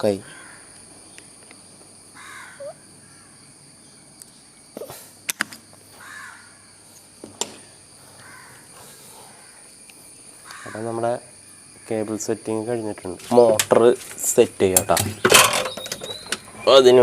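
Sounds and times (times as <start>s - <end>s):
crow cawing: 0.2s - 0.8s, 2.2s - 3.4s, 6.0s - 6.8s, 8.2s - 9.7s, 10.4s - 11.0s.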